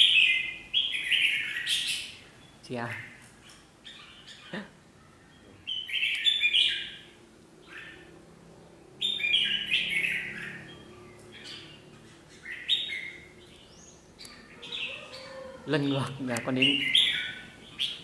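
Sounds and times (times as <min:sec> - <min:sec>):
birds chattering calls: 0:00.0 - 0:18.0.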